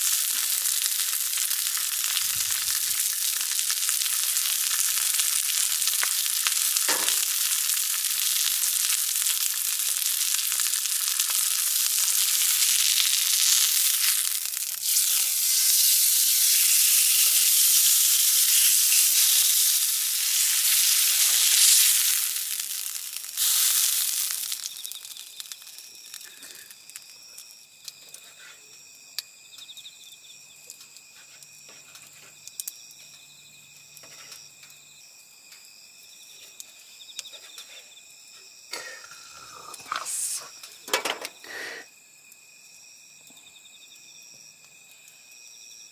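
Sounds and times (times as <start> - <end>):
meat sizzling on a hot pan: 0.0 - 29.3, 30.9 - 34.7
crickets chirping: 0.0 - 45.9.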